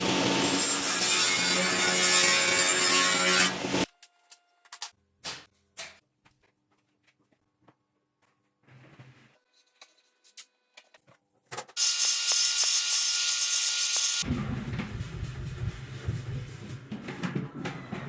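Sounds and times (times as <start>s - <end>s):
power saw cutting wood: 0.0s - 3.9s, 11.8s - 14.3s.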